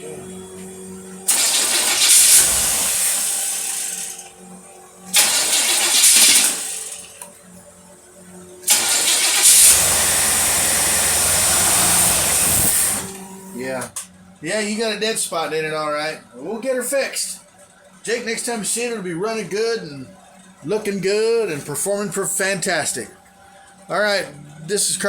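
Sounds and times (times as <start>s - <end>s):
boat engine revving: 0.0s - 13.9s.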